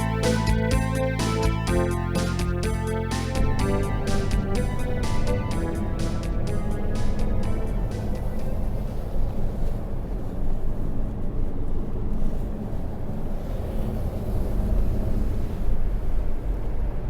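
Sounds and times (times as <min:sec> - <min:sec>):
car engine and tyre rumble: 0:03.4 - 0:17.0.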